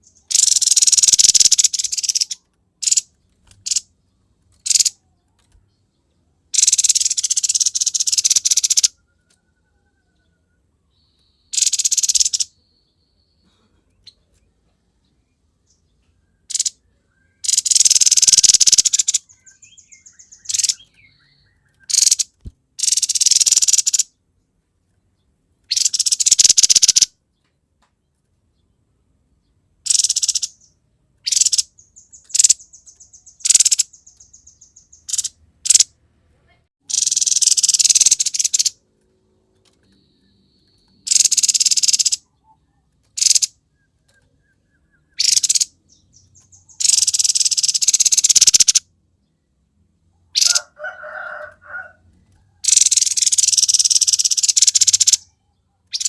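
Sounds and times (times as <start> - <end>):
fast ticking bird trills: 0.0 - 3.9, 4.6 - 5.0, 6.5 - 9.0, 11.5 - 12.6, 16.4 - 16.8, 17.4 - 24.2, 25.7 - 27.1, 29.9 - 35.9, 36.8 - 38.8, 40.7 - 42.4, 43.2 - 43.6, 44.2 - 48.8, 50.4 - 50.9, 52.6 - 55.3
bird rasping chatter: 0.3 - 3.9, 4.6 - 5.0, 6.6 - 9.0, 11.6 - 12.5, 16.5 - 16.8, 17.4 - 20.9, 21.9 - 24.1, 25.7 - 27.1, 29.9 - 30.7, 31.3 - 35.9, 36.8 - 38.8, 41.0 - 42.2, 43.2 - 43.6, 45.2 - 48.8, 50.4 - 51.9, 52.6 - 55.3.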